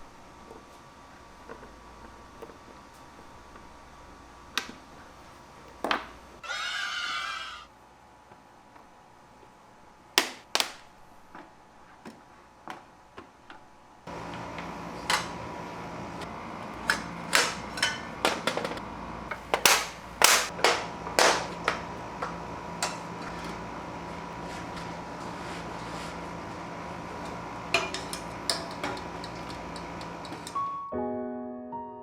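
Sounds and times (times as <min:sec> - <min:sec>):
hard objects clacking together: 0:19.4 - 0:21.9.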